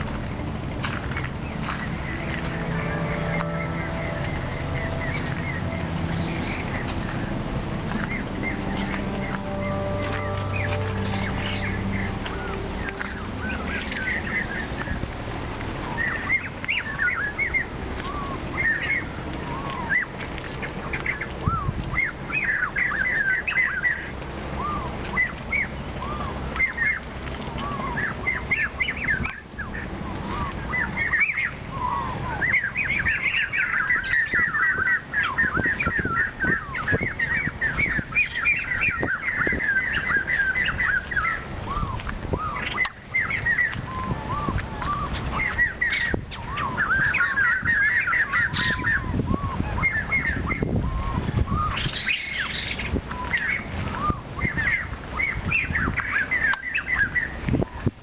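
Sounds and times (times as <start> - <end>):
birds chirping and trilling: 0.0 - 15.0, 27.7 - 57.9
low rumble: 0.0 - 17.0.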